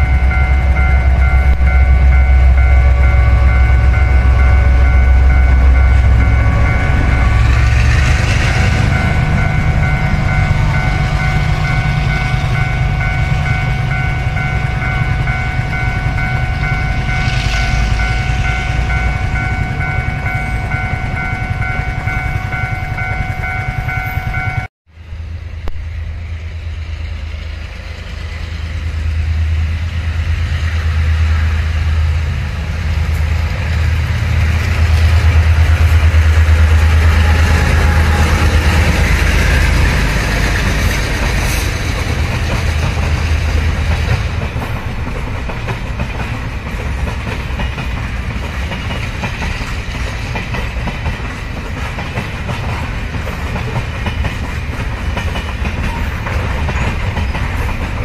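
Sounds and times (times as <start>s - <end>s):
crossing warning bell: 0.0s - 24.7s, 33.1s - 58.0s
freight wagons rumbling: 0.0s - 58.0s
locomotive engine drone: 0.0s - 58.0s.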